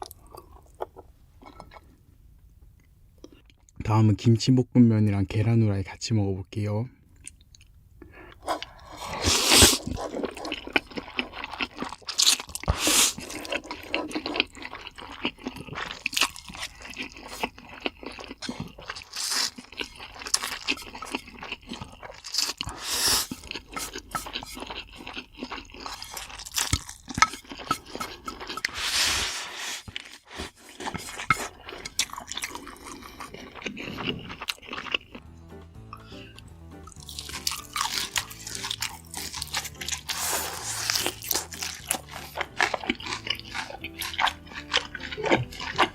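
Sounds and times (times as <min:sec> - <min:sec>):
chewing food close up: 0:08.3 - 0:28.8, 0:29.9 - 0:35.2, 0:36.8 - 0:45.9.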